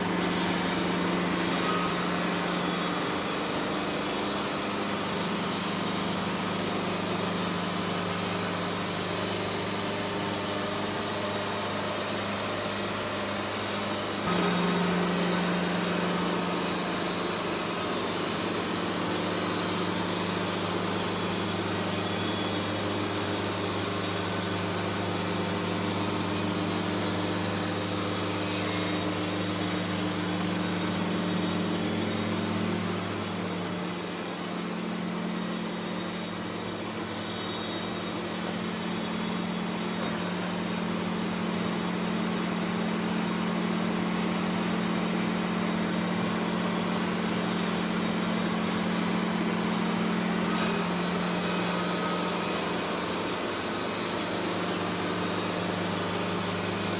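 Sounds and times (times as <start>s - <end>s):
band sawmill engine running: 0.0s - 6.6s, 14.2s - 41.3s.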